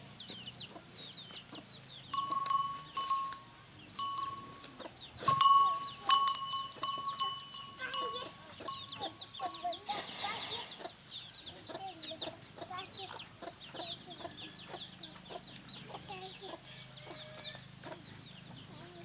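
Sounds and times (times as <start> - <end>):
short clear ringing calls: 2.1 - 10.4.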